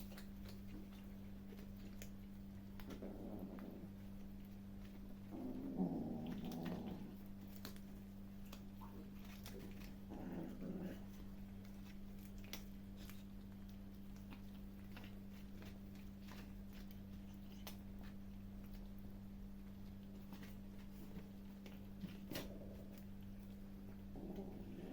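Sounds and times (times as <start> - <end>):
kittens growling: 0.0 - 13.2, 20.3 - 24.9
kittens chewing clicks: 0.0 - 24.9.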